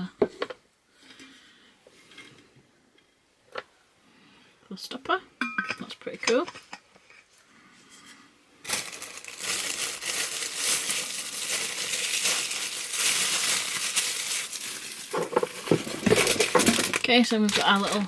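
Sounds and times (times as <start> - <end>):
paper packaging rustling and crinkling: 8.6 - 18.0.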